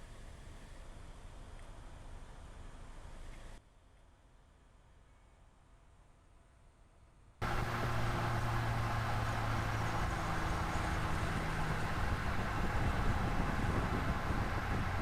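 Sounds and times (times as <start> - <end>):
truck engine running: 7.4 - 15.0
tyre and road noise: 7.4 - 15.0.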